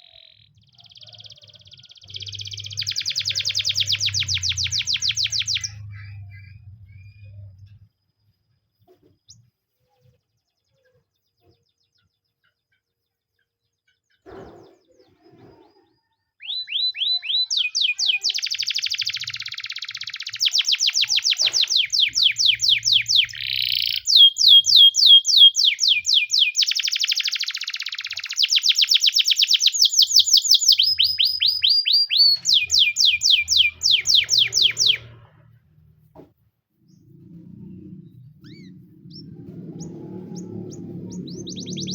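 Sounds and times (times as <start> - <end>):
canary singing trills: 0.0 - 7.9, 8.9 - 35.8, 36.8 - 41.9.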